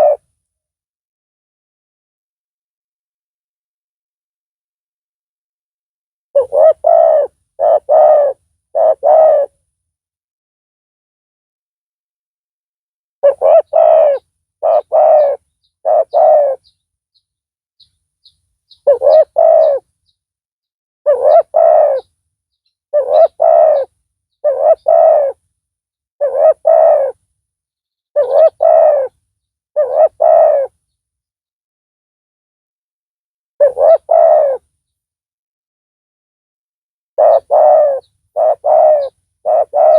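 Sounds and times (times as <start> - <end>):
dove cooing: 0.0 - 0.3, 6.4 - 9.6, 13.2 - 16.7, 18.7 - 19.9, 21.1 - 22.1, 22.9 - 25.4, 26.2 - 27.2, 28.2 - 29.2, 29.8 - 30.8, 33.6 - 34.7, 37.2 - 39.9.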